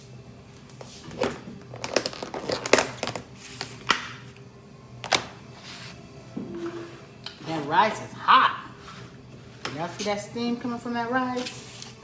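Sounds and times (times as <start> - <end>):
food packaging crinkling: 1.6 - 3.8.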